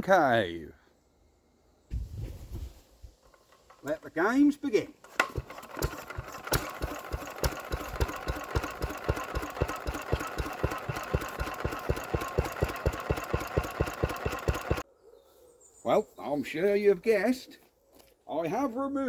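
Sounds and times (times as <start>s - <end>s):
engine knocking firing beats: 5.2s - 14.8s.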